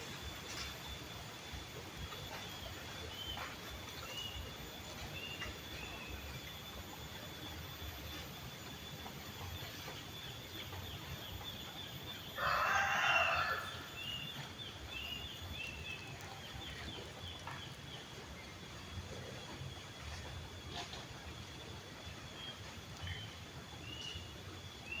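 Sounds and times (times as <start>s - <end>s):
rooster crowing: 12.4s - 14.2s.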